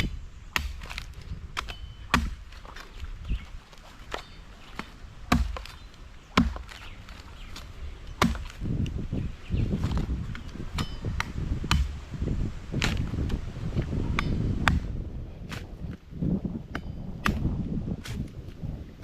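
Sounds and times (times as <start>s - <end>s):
blade chopping coconut: 0.0s - 2.9s, 4.1s - 8.6s, 9.8s - 12.0s.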